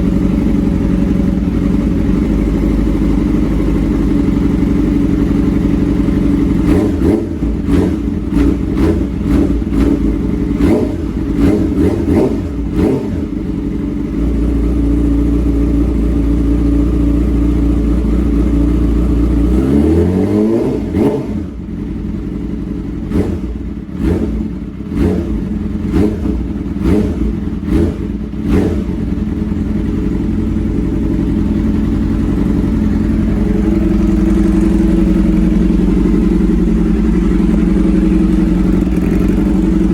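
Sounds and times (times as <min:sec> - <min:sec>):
sport bike engine revving loudly: 0:06.2 - 0:15.3, 0:19.0 - 0:39.9.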